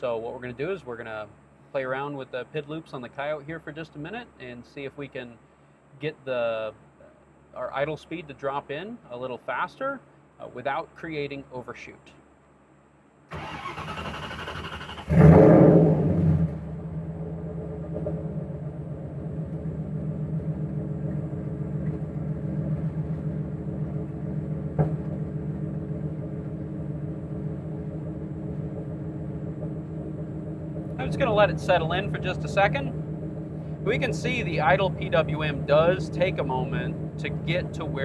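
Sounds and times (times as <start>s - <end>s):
engine cranking: 13.3s - 16.6s, 30.8s - 38.0s
engine revving and idling: 13.3s - 38.0s.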